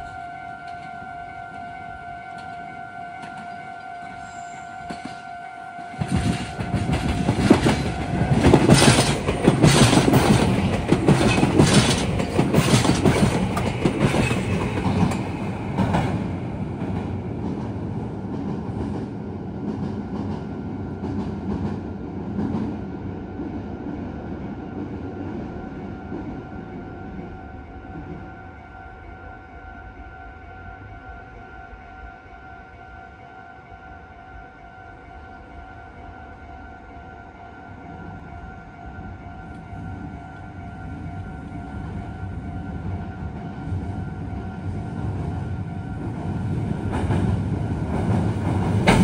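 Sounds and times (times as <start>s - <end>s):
level crossing warning bell: 0.0s - 15.9s
train wheels clattering over rail joints: 6.0s - 16.2s, 47.9s - 49.0s.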